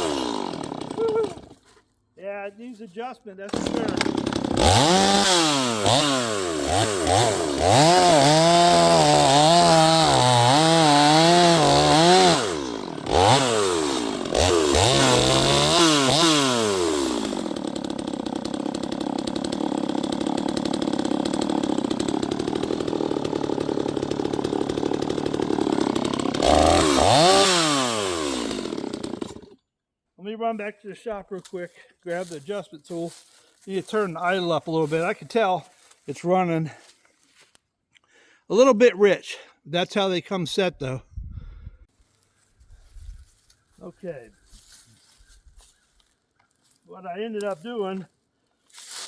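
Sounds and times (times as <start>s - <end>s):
chainsaw revving and idling: 0.0s - 1.6s, 3.5s - 29.6s.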